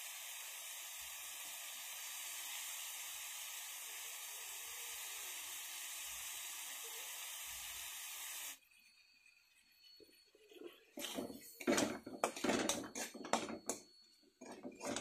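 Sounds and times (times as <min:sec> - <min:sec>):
masala sizzling in a pan: 0:00.0 - 0:08.6.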